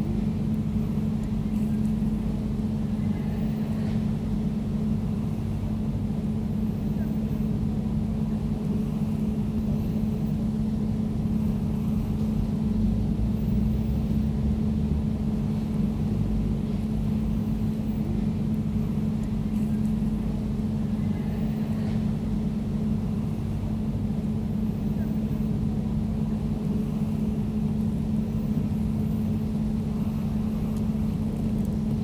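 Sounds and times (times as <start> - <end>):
air conditioner humming: 0.0 - 32.0.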